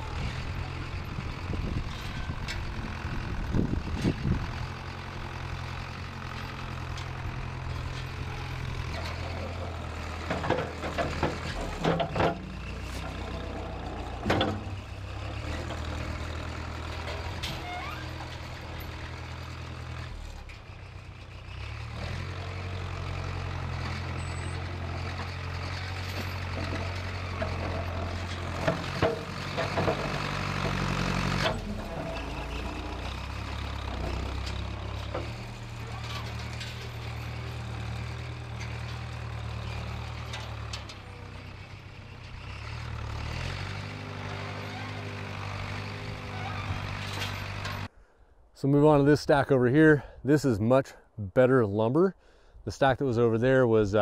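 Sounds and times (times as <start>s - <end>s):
diesel engine running: 0.0s - 48.0s
sharp clanks and knocks: 5.5s - 16.2s, 25.0s - 41.6s, 42.2s - 47.9s.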